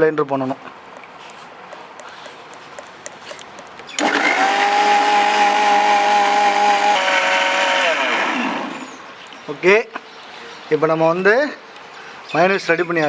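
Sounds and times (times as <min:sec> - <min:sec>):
blender motor whining: 0:04.0 - 0:09.2.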